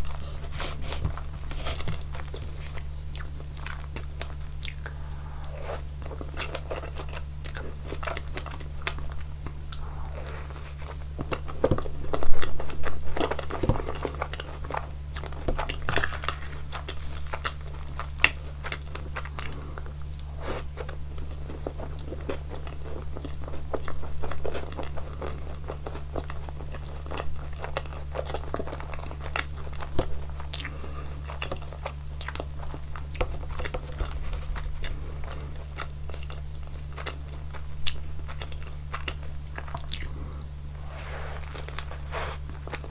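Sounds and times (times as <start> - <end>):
low hum: 0.0 - 13.1, 37.4 - 42.9
crunchy bites and chewing: 0.0 - 42.9.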